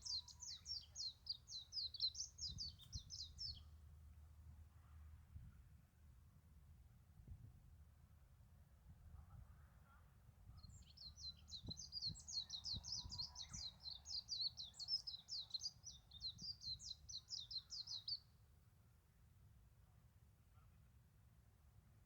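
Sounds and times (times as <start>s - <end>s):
small bird chirping: 0.0s - 3.7s, 10.6s - 18.2s.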